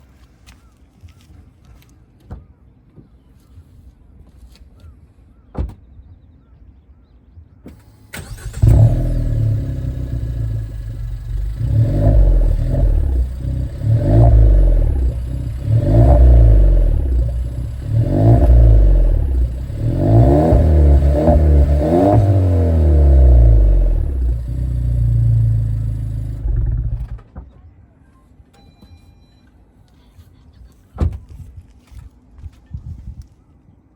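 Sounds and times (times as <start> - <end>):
car engine idling and revving: 7.7 - 27.4.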